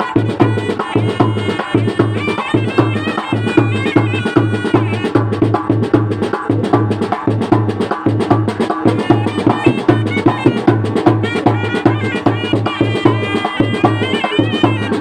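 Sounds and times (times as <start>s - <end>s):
high wavering melody: 0.0s - 5.4s, 8.9s - 15.0s
fast steady drumbeat: 0.0s - 15.0s.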